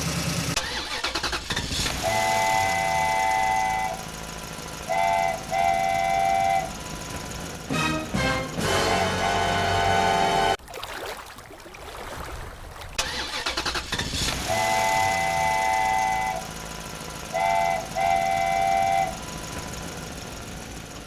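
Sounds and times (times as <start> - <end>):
rumbling motor noise: 0.0 - 10.6, 13.0 - 21.0
vehicle horn blasts: 2.0 - 4.1, 4.9 - 6.8, 7.7 - 10.6, 14.4 - 16.5, 17.3 - 19.4.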